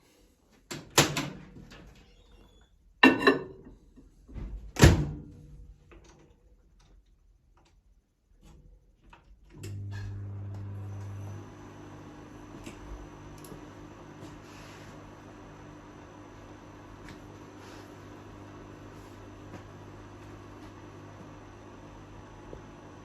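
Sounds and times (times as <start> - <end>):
microwave running hum: 9.0 - 23.0.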